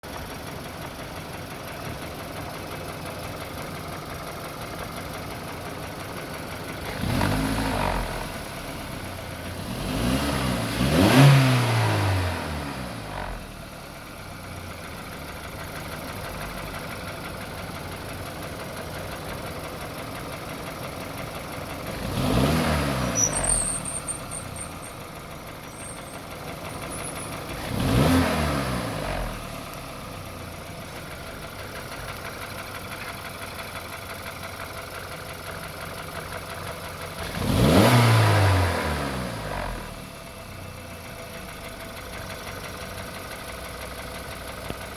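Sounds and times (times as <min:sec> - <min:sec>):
car engine idling and revving: 0:00.0 - 0:44.9
engine top-end rattle: 0:23.0 - 0:27.7.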